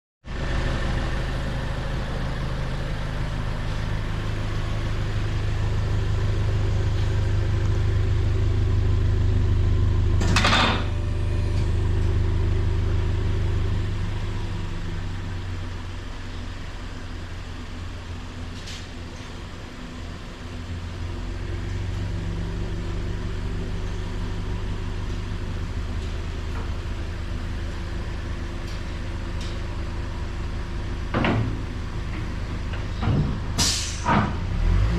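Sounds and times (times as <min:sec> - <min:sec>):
car exhaust droning: 0:00.3 - 0:34.9.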